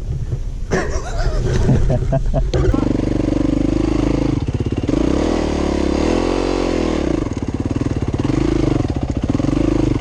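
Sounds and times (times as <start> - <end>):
dirt bike engine revving: 2.6 - 10.0.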